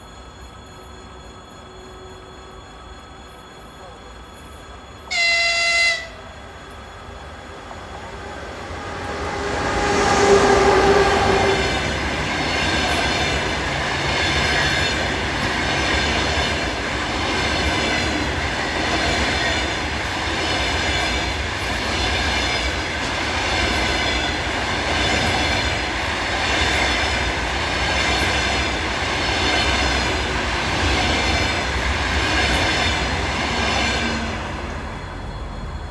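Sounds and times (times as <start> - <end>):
electric locomotive passing: 0.0 - 35.9
passenger train rolling by: 0.0 - 35.9
train horn blast: 5.1 - 6.4, 8.4 - 12.1.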